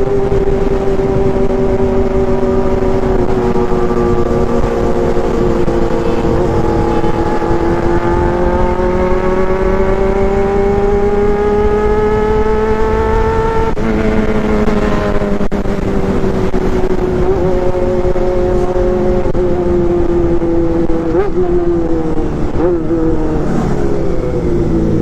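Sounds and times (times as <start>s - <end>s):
vehicle engine running: 0.0s - 21.0s
steady engine tone: 0.0s - 25.0s.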